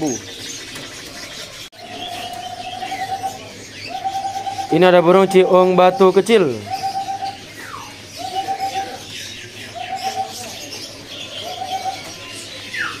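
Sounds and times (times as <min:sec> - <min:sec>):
faint high bird chirps: 0:00.0 - 0:13.0
bird repeating even-pitched note: 0:04.0 - 0:07.4.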